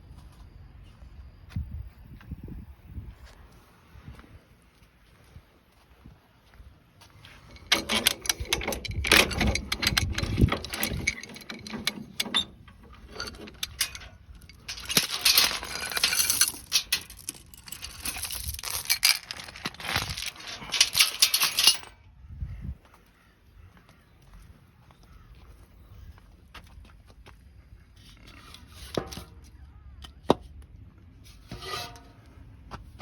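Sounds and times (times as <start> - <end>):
metal objects clattering: 7.3 - 22.0, 31.4 - 32.2.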